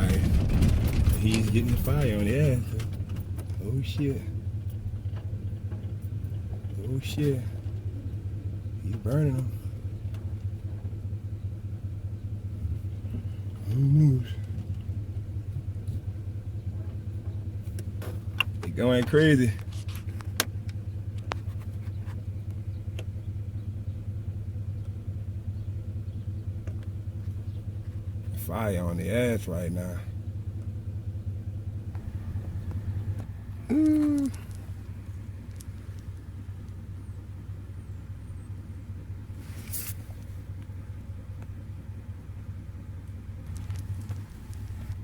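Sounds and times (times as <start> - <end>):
vehicle engine idling: 0.0 - 45.0
faint clicks: 31.9 - 36.8
brief hiss: 39.4 - 40.3.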